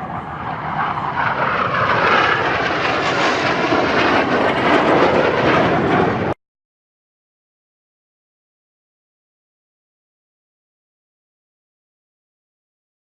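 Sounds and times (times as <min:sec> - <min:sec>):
jet aircraft flying past: 0:00.0 - 0:06.4.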